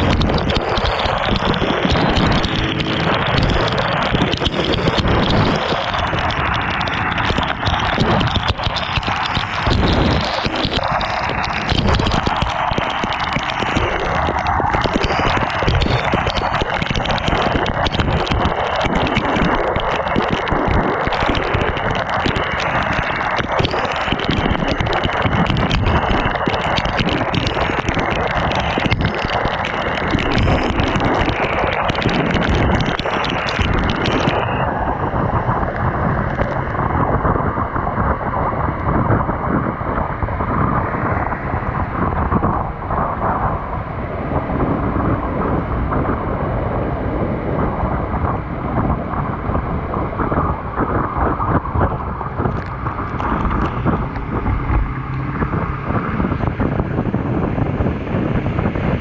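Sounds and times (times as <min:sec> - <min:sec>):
rain hitting microphone: 0:00.0 - 0:59.0
wind buffeting microphone: 0:00.0 - 0:59.0.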